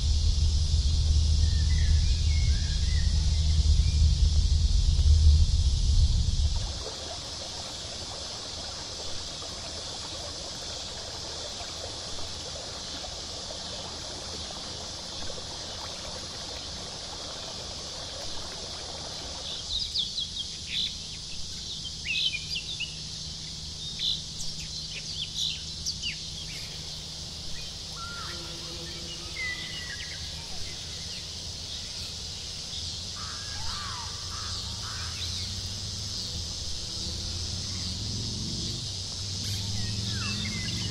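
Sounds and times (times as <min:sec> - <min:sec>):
steady high hiss: 0:00.0 - 0:40.9
lower whistled calls: 0:01.1 - 0:04.3, 0:23.8 - 0:32.2, 0:39.2 - 0:40.9.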